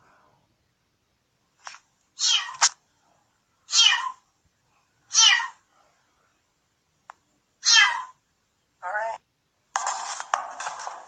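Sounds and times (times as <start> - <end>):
high-pitched animal cries: 7.6 - 8.2.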